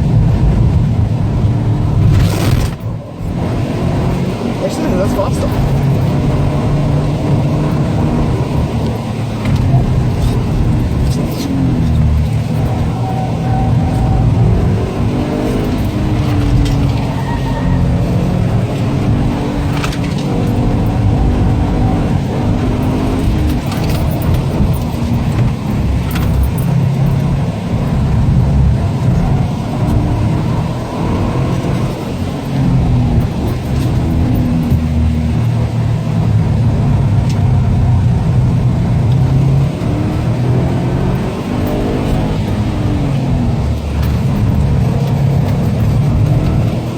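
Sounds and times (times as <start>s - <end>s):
turbocharged car engine pulling hard: 0.0s - 46.9s.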